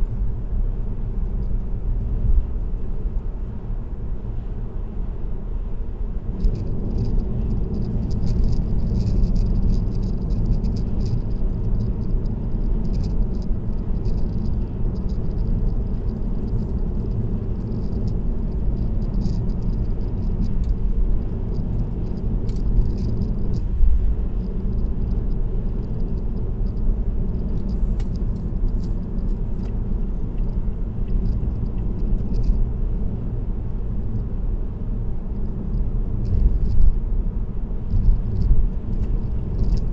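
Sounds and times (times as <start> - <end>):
tyres rumbling on road: 0.0 - 39.9
light clicking rattle: 6.4 - 32.6, 37.9 - 39.9.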